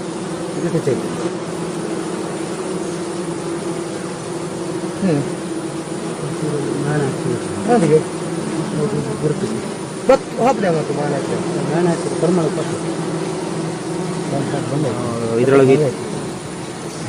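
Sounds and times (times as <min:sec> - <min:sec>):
bees buzzing: 0:00.0 - 0:17.0
bees flying past: 0:00.0 - 0:17.0.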